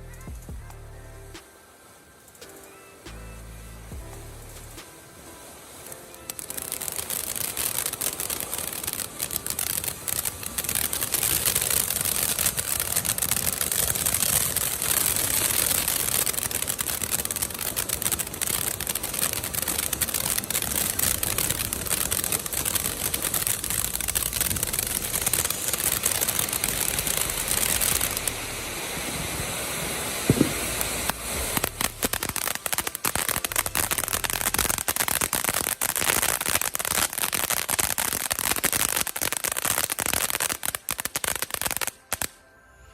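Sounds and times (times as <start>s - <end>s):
firework fountain hissing spray: 0.0s - 42.4s
firework crackling: 0.0s - 42.9s
firework pop: 30.2s - 32.4s.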